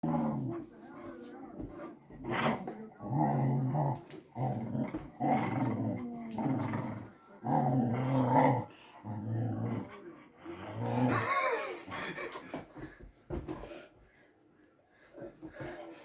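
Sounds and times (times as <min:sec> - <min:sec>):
dog growling: 0:00.0 - 0:00.7, 0:02.0 - 0:11.6.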